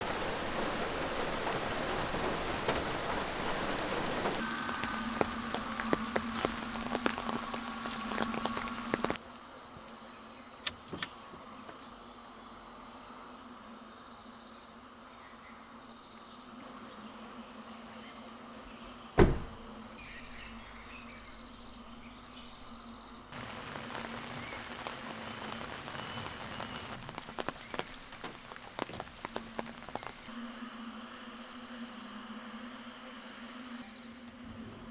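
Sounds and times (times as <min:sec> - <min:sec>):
rain falling and dripping: 0:00.0 - 0:09.2, 0:19.2 - 0:30.5
high insect tone: 0:00.1 - 0:34.9.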